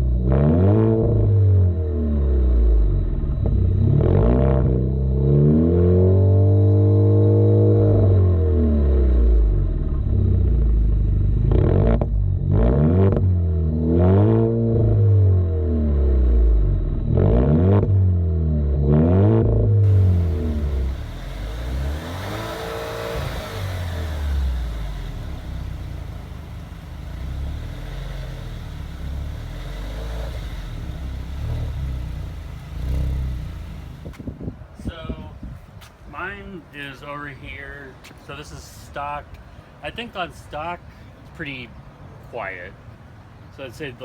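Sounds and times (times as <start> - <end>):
car engine revving: 0.0 - 34.2
car engine idling: 1.1 - 5.2, 8.4 - 12.5, 19.8 - 34.2.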